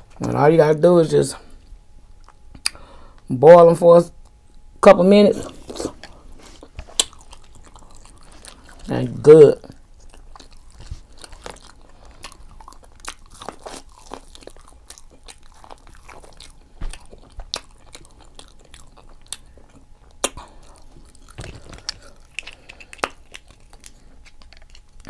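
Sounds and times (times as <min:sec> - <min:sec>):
person chewing food: 0:01.5 - 0:03.2, 0:05.3 - 0:25.0
wet mouth clicks: 0:02.2 - 0:02.8, 0:06.8 - 0:08.9, 0:20.1 - 0:25.0.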